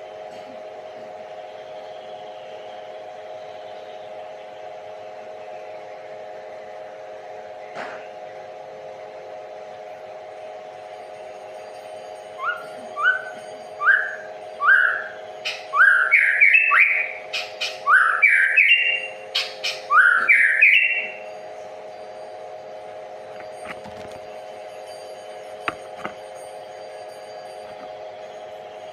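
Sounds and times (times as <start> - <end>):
steady hum: 0.0 - 28.9
songbird whistling rising notes: 12.4 - 21.2.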